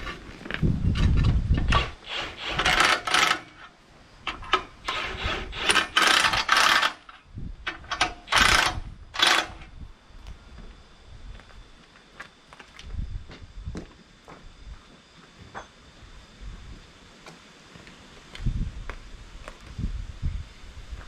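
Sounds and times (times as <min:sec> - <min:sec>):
metal parts scraping and clanking: 0:00.0 - 0:09.7.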